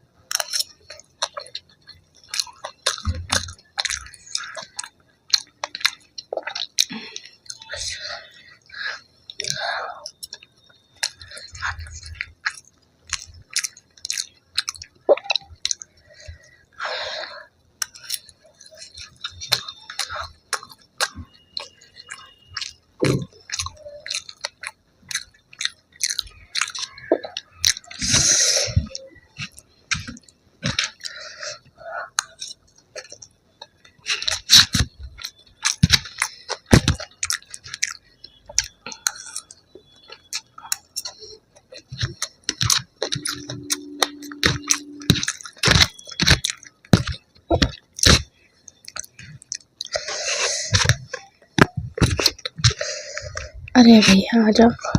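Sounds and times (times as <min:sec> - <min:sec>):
person chewing crunchy food: 0:00.0 - 0:54.9.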